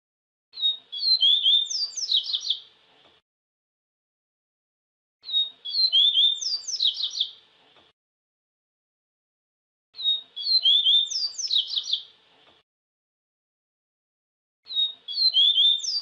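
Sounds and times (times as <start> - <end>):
bird singing whistled notes: 0.6 - 2.6, 5.2 - 7.4, 10.0 - 12.1, 14.7 - 16.0.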